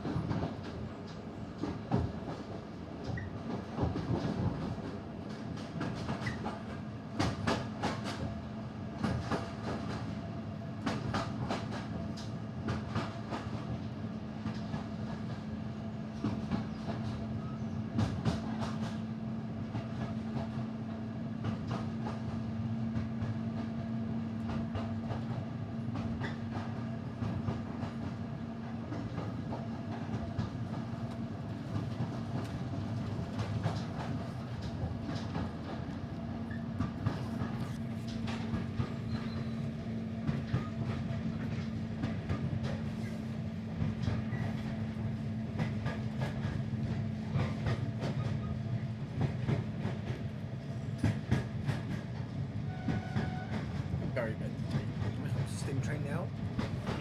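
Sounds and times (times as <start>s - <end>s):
train running hum: 0.0s - 57.0s
train wheels clicking over rail joints: 28.8s - 57.0s.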